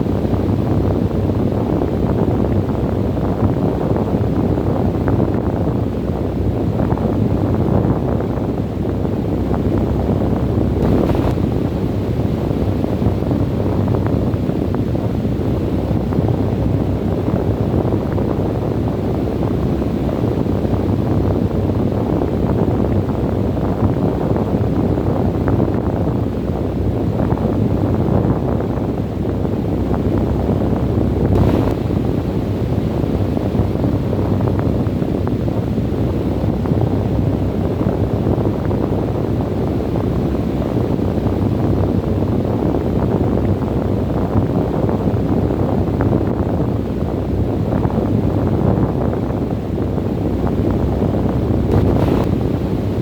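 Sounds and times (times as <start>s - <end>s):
wind buffeting microphone: 0.0s - 53.0s
wind blowing: 10.6s - 14.0s, 31.3s - 35.1s, 51.2s - 53.0s
crackles of sand: 31.4s - 32.0s.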